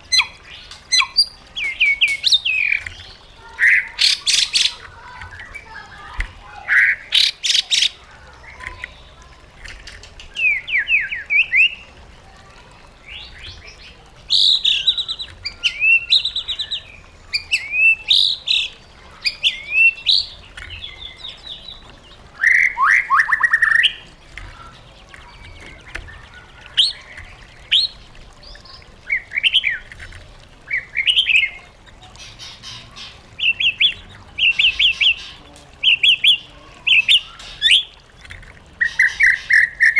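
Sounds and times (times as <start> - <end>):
bird singing whistled phrases: 22.4 - 24.0.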